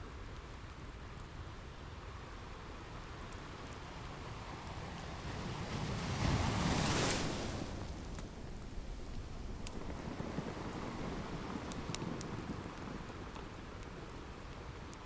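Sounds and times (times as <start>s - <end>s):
ocean waves breaking: 5.8s - 8.0s.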